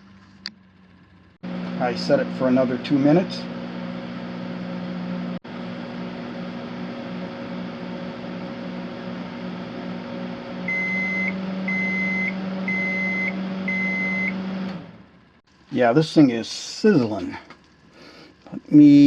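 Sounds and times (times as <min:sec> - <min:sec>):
microwave oven humming: 0:00.0 - 0:19.0
microwave high beeps: 0:10.6 - 0:14.6.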